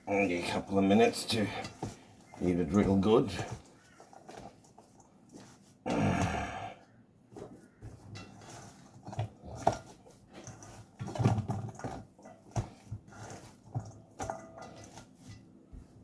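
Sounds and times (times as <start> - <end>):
hands squelching meat mixture: 0.1 - 16.0.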